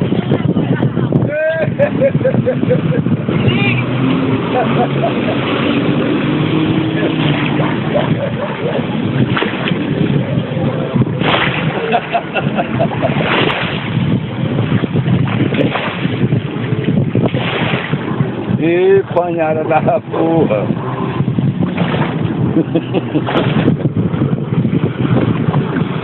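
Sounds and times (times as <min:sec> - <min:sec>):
jet ski engine: 0:00.0 - 0:26.0
wind noise: 0:00.0 - 0:26.0
water spray rushing: 0:11.0 - 0:23.8.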